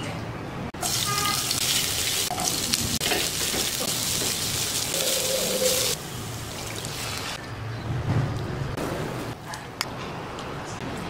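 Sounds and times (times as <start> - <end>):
onion sizzling in hot oil: 0.8 - 7.4.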